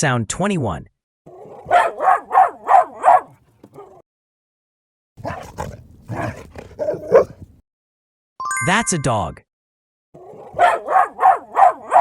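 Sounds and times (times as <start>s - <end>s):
dog barking: 1.3s - 4.0s, 5.2s - 7.4s, 10.2s - 12.0s.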